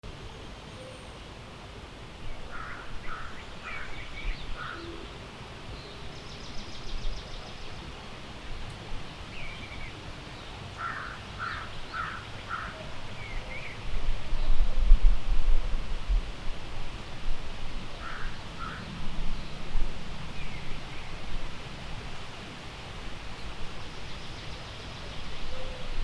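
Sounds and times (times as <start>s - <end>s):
wind rumble on microphone: 12.8s - 26.0s.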